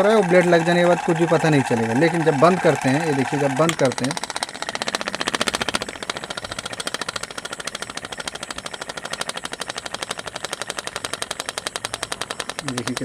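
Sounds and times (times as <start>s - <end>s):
fan motor coasting down: 0.0s - 13.0s
rapid knocking rattle: 0.0s - 13.0s.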